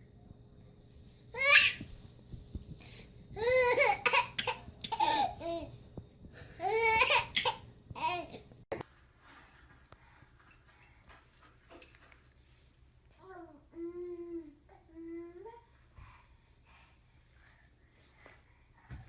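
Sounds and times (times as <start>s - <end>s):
baby laughing and babbling: 3.4s - 5.7s, 6.6s - 8.4s.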